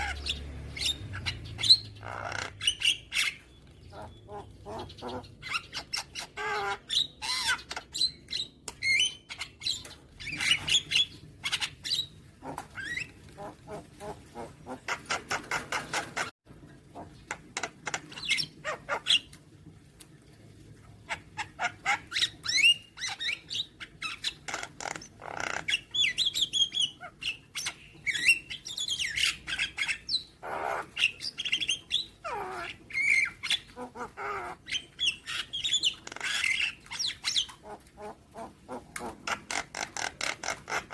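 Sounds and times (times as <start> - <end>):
myna calling: 32.2 - 40.9.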